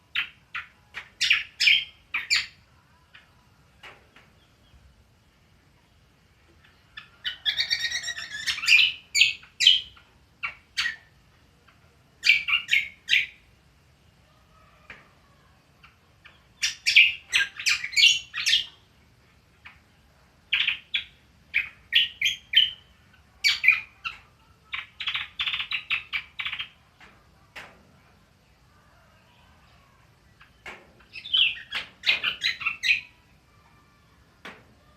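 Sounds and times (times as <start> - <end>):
songbird twittering: 0.1 - 3.4, 6.6 - 11.1, 12.2 - 13.4, 15.8 - 18.8, 19.6 - 26.8, 29.3 - 33.3.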